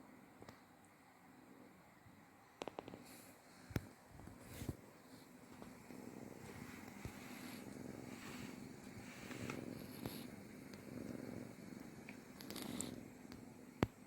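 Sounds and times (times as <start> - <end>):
kitten purring: 1.4 - 14.0.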